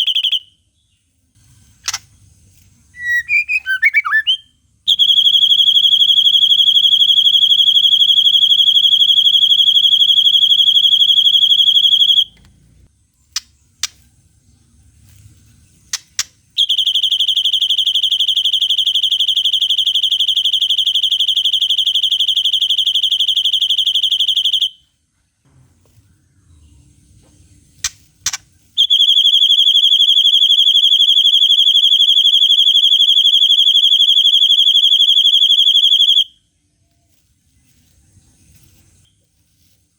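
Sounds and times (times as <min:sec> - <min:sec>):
short sharp bird chirps: 0:01.4 - 0:04.6
high-pitched bird trills: 0:03.0 - 0:05.0.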